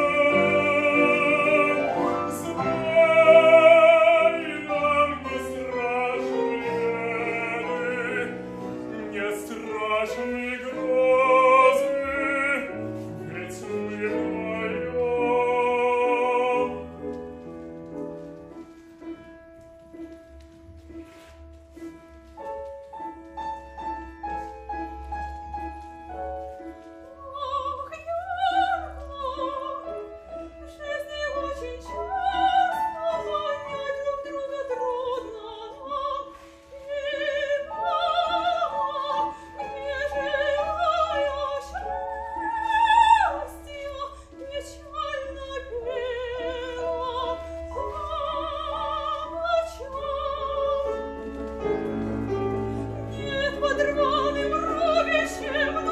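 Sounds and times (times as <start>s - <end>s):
soprano singing with vibrato: 0.0s - 17.3s, 25.8s - 55.9s
piano accompaniment: 0.0s - 55.9s.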